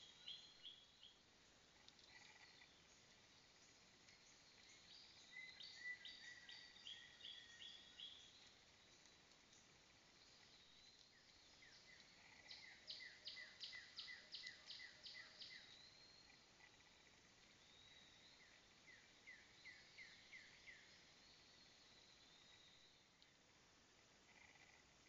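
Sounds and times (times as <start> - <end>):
bird chirping: 0.0 - 23.2
faint insect buzzing: 0.1 - 15.6, 23.9 - 25.0.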